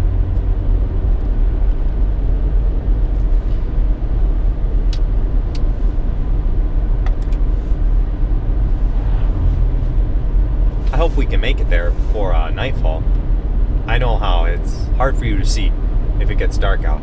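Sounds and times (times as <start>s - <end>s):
car engine and tyres rumble: 0.0s - 17.0s.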